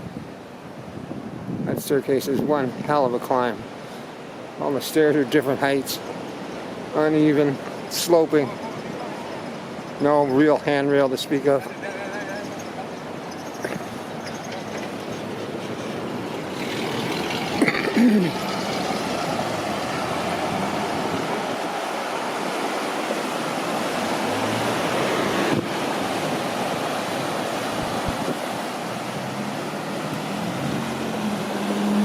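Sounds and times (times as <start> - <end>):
road traffic: 2.4 - 32.0
vehicle passing loudly: 14.9 - 32.0.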